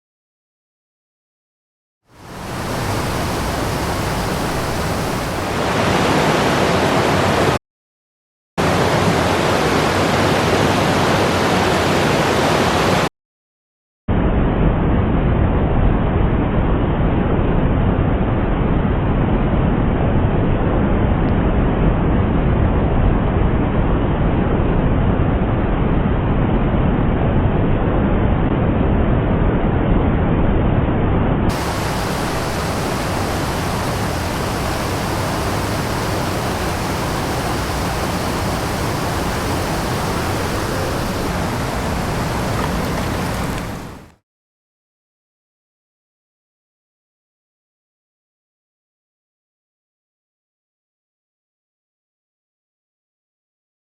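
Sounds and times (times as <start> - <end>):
mountain stream rushing: 2.2 - 7.6, 8.6 - 13.1, 31.5 - 44.2.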